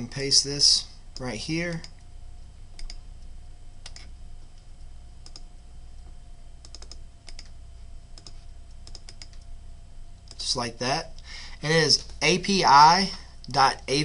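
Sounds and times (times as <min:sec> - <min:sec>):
faint electrical hum: 0:00.0 - 0:14.0
keyboard and mouse clicks: 0:02.8 - 0:03.0, 0:03.8 - 0:04.1, 0:05.2 - 0:05.5, 0:06.6 - 0:07.5, 0:08.2 - 0:09.4.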